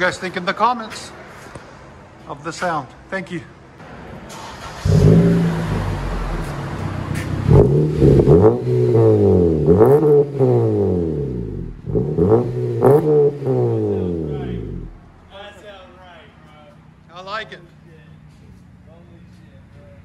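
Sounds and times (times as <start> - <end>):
car engine starting and revving: 4.3 - 15.2.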